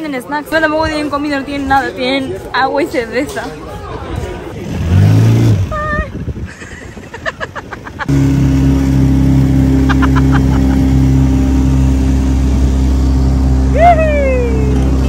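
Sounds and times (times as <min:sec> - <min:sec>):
engine running from inside vehicle: 0:08.1 - 0:15.0.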